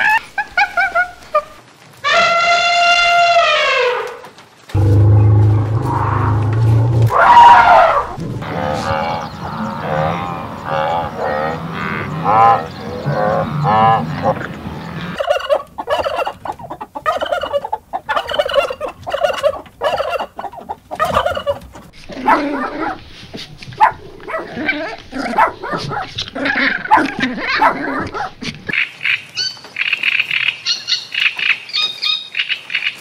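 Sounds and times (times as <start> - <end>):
turkeys gobbling and clucking: 0.0 - 3.3, 5.9 - 29.9
low hum: 4.8 - 10.8
repeated pitched animal calls: 4.8 - 28.8
puppy yelping barks: 22.2 - 23.0, 23.8 - 28.4.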